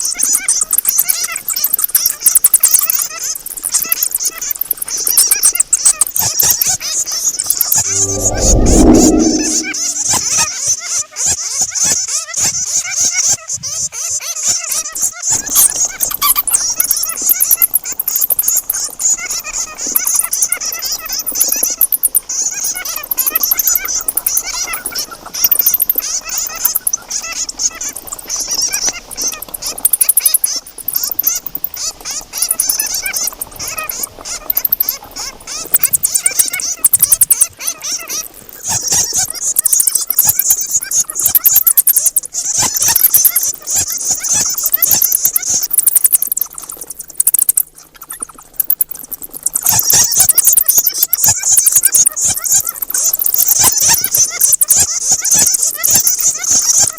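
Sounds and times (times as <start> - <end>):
bats squeaking and chattering: 0.0 - 6.6, 14.5 - 56.9.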